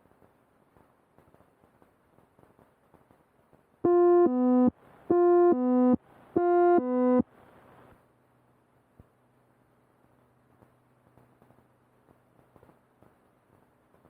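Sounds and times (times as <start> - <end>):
electronic two-tone alert: 3.9 - 7.2.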